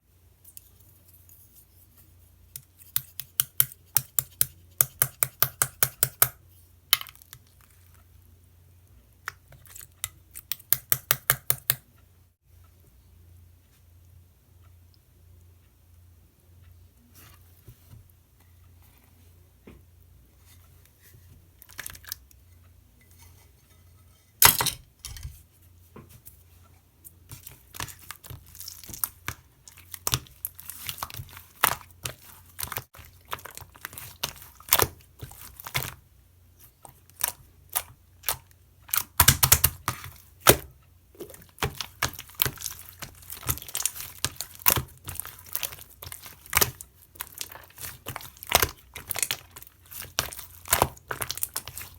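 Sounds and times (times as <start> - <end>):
slime squishing with pops: 2.8 - 7.6, 9.2 - 11.8, 27.3 - 51.9.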